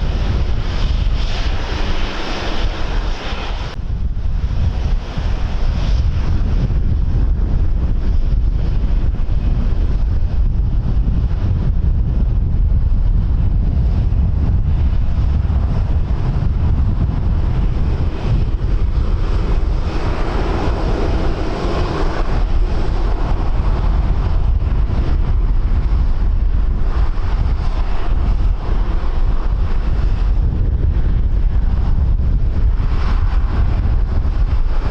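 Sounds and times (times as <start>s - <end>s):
rushing wind noise: 0.0s - 34.9s
wind buffeting microphone: 0.0s - 34.9s.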